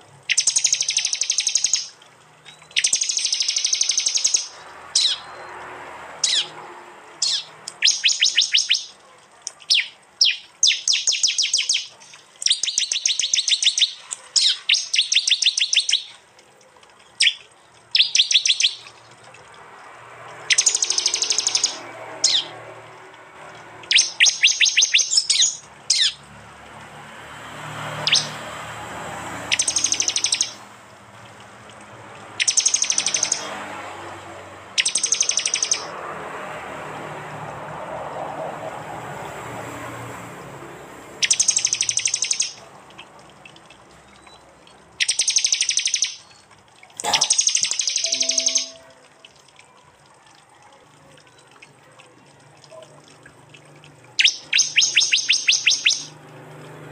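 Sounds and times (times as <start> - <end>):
bird singing sharp repeated notes: 0.3 - 5.5, 6.2 - 6.6, 7.2 - 16.2, 17.1 - 19.2, 20.4 - 22.5, 23.8 - 26.2, 28.0 - 28.4, 29.5 - 30.6, 32.4 - 33.5, 34.8 - 35.9, 41.2 - 42.7, 44.2 - 46.4, 47.0 - 49.2, 54.2 - 56.1.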